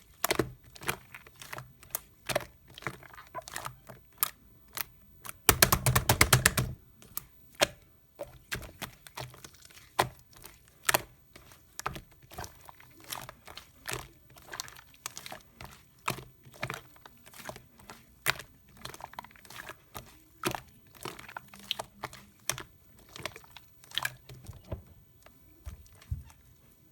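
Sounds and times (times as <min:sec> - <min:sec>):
slime clicking and popping: 0:04.2 - 0:07.8.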